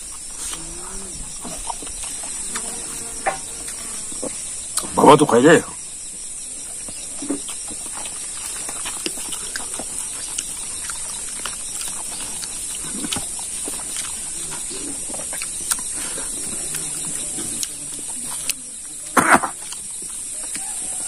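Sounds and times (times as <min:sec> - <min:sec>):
man chewing and smacking: 0:00.0 - 0:04.9, 0:06.6 - 0:21.0
high insect buzz: 0:00.0 - 0:21.0.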